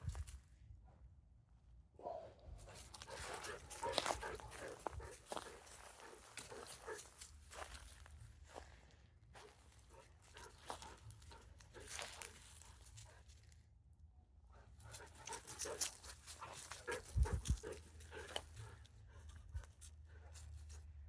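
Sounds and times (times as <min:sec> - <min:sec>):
dog panting: 0:02.6 - 0:07.8, 0:09.9 - 0:13.2, 0:14.5 - 0:20.8.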